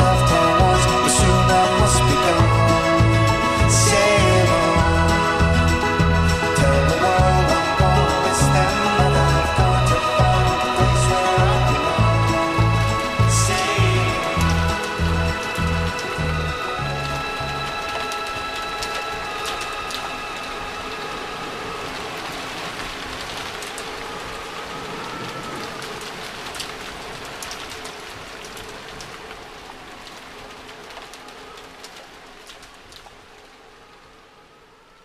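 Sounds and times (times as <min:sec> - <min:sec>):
held music notes: 0:00.0 - 0:21.9
rain falling: 0:00.0 - 0:35.0.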